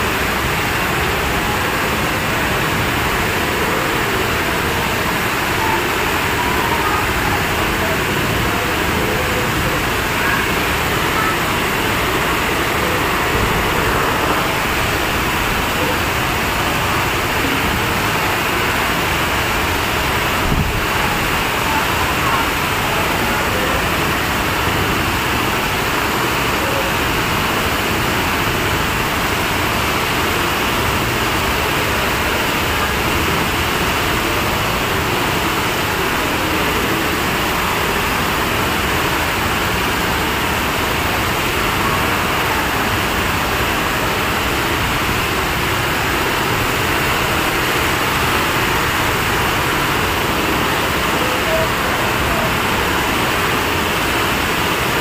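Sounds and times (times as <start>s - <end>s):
floodwater rushing: 0.0s - 55.0s
heavy rain: 0.0s - 55.0s.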